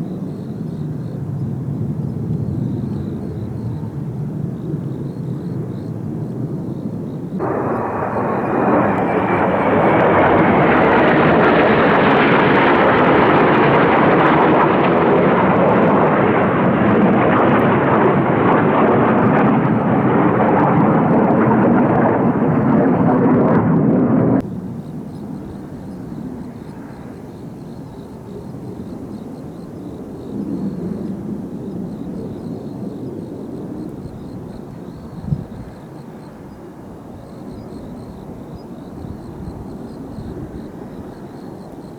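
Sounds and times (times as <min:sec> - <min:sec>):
distant jet noise: 0:05.7 - 0:27.6
jet roar: 0:07.4 - 0:24.4
jet whine: 0:07.4 - 0:24.4.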